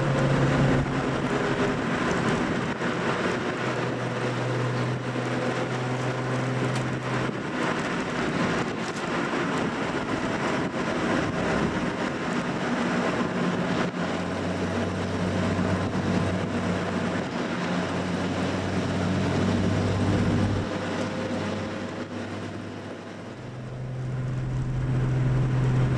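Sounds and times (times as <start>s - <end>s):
car engine and exhaust: 0.0s - 25.9s
tyre and road noise: 0.0s - 25.9s.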